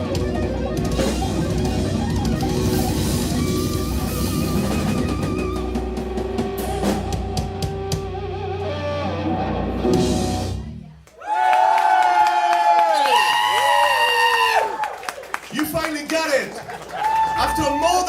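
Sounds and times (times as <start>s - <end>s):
drum kit with cymbal hits: 0.0s - 8.4s, 9.6s - 10.9s
electric guitar: 0.0s - 10.9s
bass guitar: 0.0s - 11.0s.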